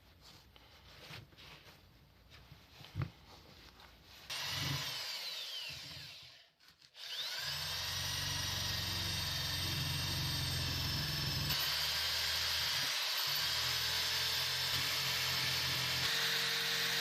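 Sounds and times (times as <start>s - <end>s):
power tool motor whining: 4.3s - 6.4s, 7.0s - 17.0s.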